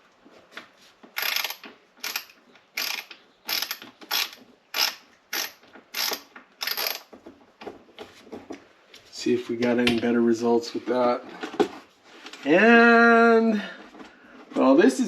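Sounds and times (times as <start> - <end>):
screwdriver grating in screw: 1.2 - 7.1.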